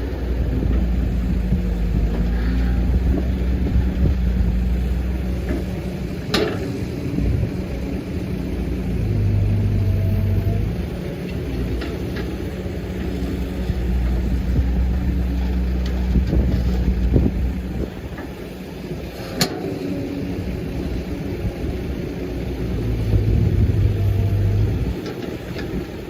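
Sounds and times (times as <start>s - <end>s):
excavator diesel engine working: 0.0s - 26.0s.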